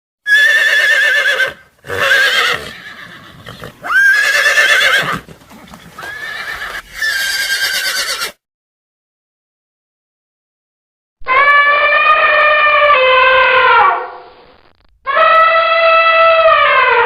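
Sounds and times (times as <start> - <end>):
horse whinnying: 0.3 - 8.4.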